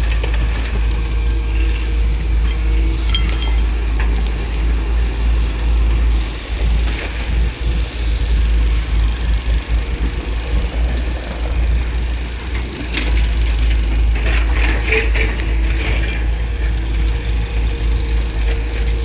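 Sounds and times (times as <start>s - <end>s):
metallic clanking and rattling: 0.0s - 6.0s
excavator low rumble: 0.0s - 19.0s.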